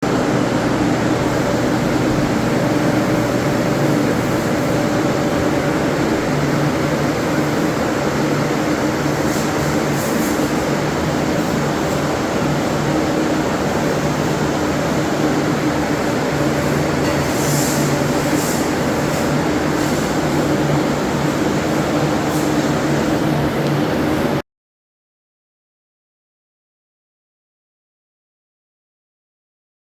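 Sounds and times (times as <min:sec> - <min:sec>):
machine humming: 0:00.0 - 0:10.0.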